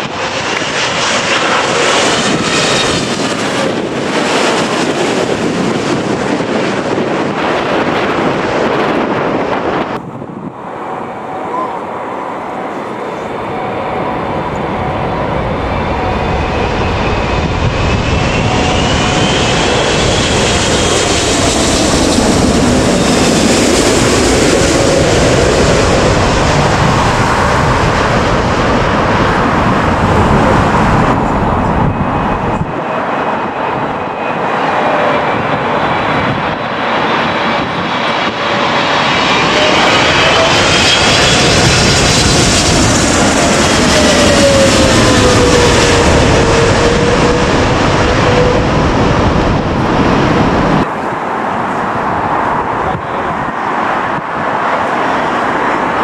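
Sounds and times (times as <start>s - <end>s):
jet engines passing overhead: 0.0s - 56.0s.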